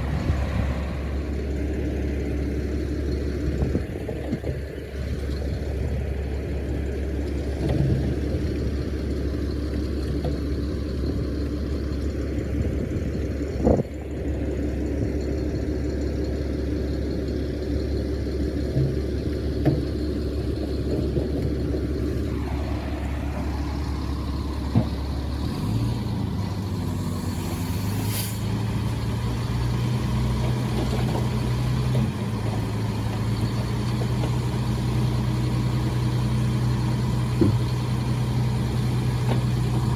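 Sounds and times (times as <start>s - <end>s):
diesel machinery running: 0.0s - 39.9s
brief hiss: 27.0s - 28.5s.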